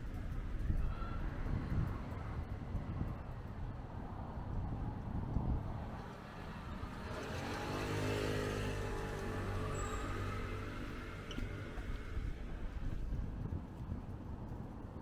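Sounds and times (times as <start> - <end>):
motor vehicle passing by: 5.9 - 12.8.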